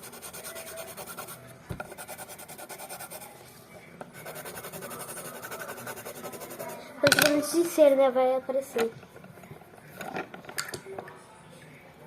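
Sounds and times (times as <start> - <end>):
scribbling on paper: 0.0 - 3.4, 4.2 - 6.8.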